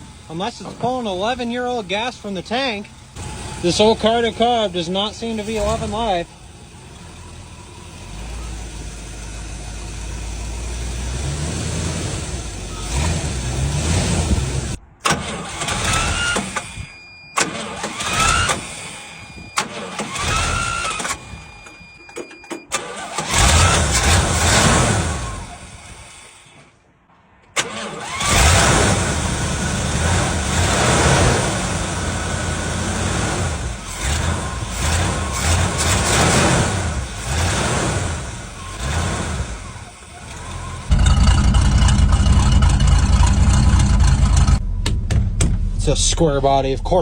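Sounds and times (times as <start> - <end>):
truck engine revving roughly: 0.0 - 21.6, 22.7 - 26.7, 27.6 - 47.0.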